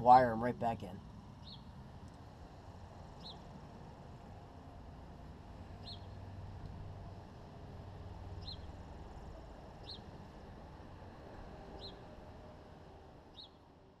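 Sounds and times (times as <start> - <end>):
small bird chirping: 3.2 - 3.4, 5.8 - 6.2, 8.4 - 8.7, 9.8 - 10.1, 11.8 - 12.0, 13.3 - 13.6.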